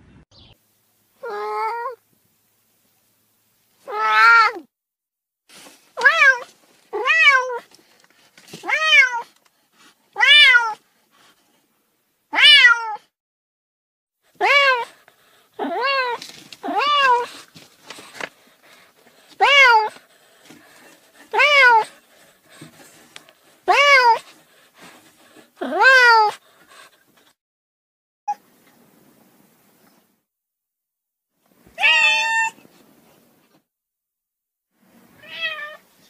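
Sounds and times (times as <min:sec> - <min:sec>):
cat meowing: 0:08.6 - 0:09.3, 0:10.2 - 0:10.8, 0:12.3 - 0:13.0, 0:14.4 - 0:14.9, 0:15.6 - 0:17.3, 0:19.4 - 0:20.0, 0:21.3 - 0:21.9, 0:23.7 - 0:24.2, 0:25.6 - 0:26.4, 0:31.8 - 0:32.6, 0:35.2 - 0:35.8.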